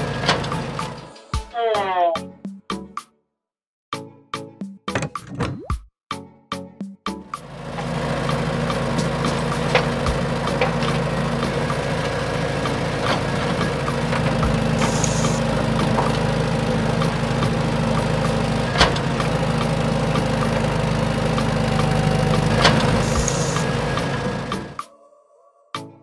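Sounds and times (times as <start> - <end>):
clicks from tracks and gears: 0.0 - 1.4, 13.0 - 16.2, 18.7 - 19.3, 22.6 - 23.6
toy electric motors whirring: 14.8 - 15.5, 23.0 - 23.7.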